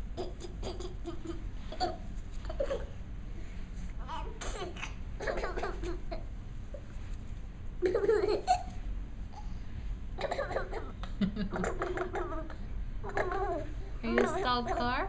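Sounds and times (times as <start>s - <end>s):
child laughing: 4.2s - 6.2s, 7.8s - 8.8s, 10.2s - 15.0s.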